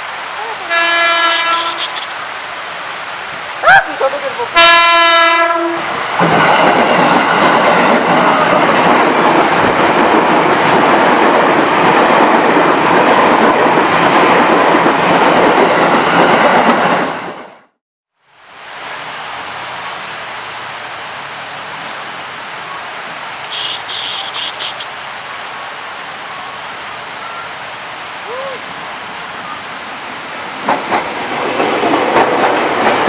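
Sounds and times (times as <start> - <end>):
heavy rain: 0.0 - 16.6, 18.2 - 33.0
train rumble and wheel clatter: 0.1 - 17.7, 18.6 - 33.0
train horn: 0.6 - 2.1, 4.6 - 5.9.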